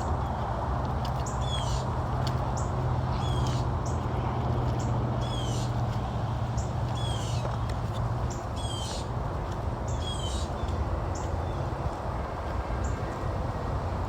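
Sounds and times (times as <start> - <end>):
bird harsh scratchy calls: 1.2 - 1.9, 2.6 - 4.0, 5.2 - 5.8, 6.6 - 7.4, 8.3 - 9.1.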